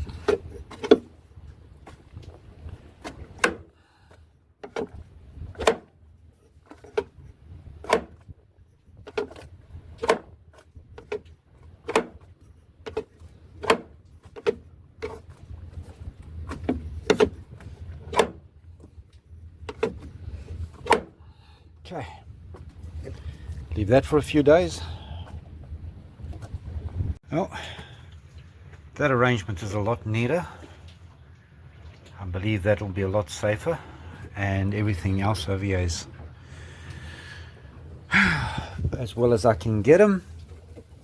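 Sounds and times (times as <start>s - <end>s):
low wind rumble: 0.0s - 6.4s, 14.8s - 40.2s.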